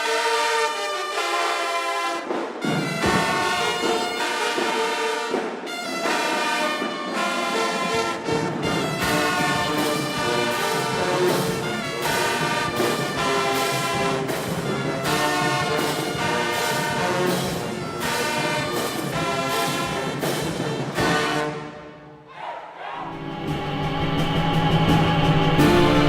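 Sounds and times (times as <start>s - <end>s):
brass playing sustained chords: 0.0s - 20.3s.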